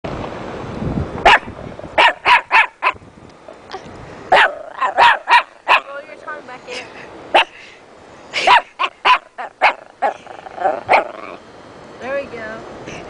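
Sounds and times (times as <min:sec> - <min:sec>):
dog barking: 0:01.2 - 0:03.0, 0:04.3 - 0:05.9, 0:08.4 - 0:10.2, 0:10.9 - 0:11.2.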